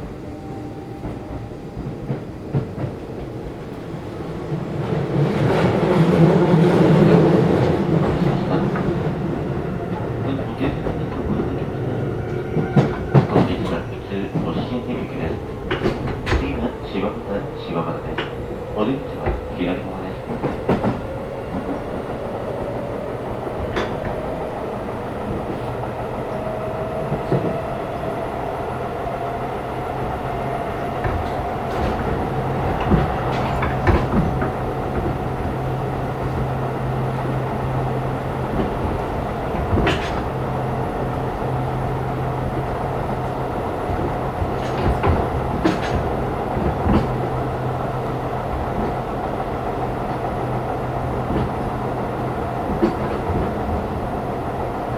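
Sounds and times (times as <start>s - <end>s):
wheels clicking over rail joints: 30.8s - 54.9s.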